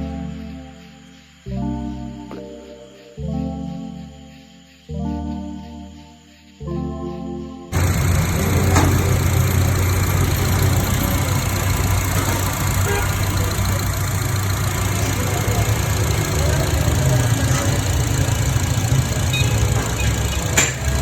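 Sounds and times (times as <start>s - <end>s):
car engine idling: 7.8s - 21.0s.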